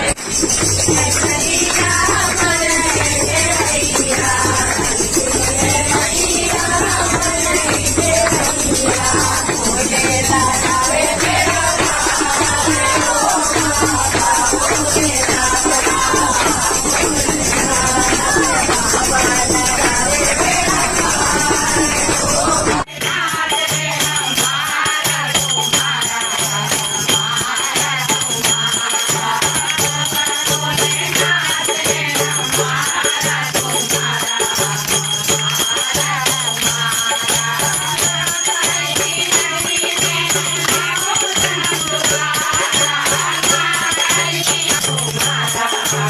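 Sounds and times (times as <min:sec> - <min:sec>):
group singing devotional song: 0:00.0 - 0:46.0
jangling rattle percussion: 0:00.0 - 0:46.0
steady high ringing: 0:00.0 - 0:46.0
low pulsing beat: 0:01.4 - 0:22.8.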